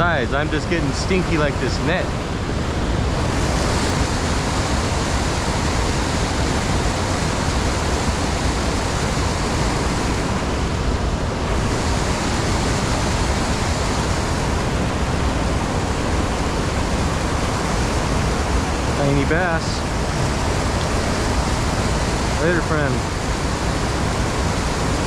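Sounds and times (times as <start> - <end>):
creek water over rocks: 1.2 - 13.6.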